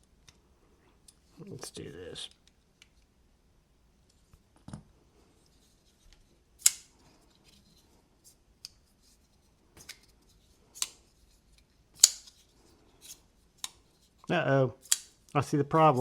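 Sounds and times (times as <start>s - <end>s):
folding knife clicking: 6.6s - 6.9s, 10.8s - 11.0s, 12.0s - 12.4s, 14.8s - 15.2s.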